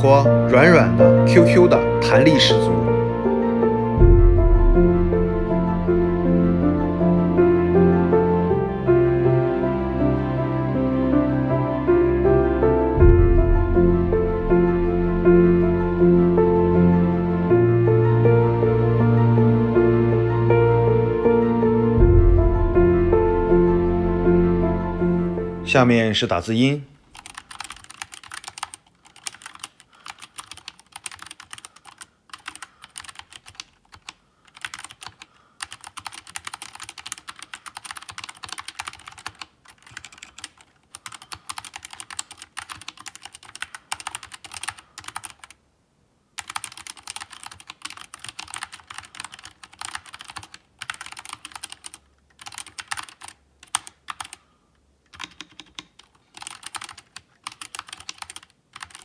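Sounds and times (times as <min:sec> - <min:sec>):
mechanical keyboard typing: 0:27.1 - 0:45.6, 0:46.4 - 0:54.4, 0:55.1 - 0:59.0.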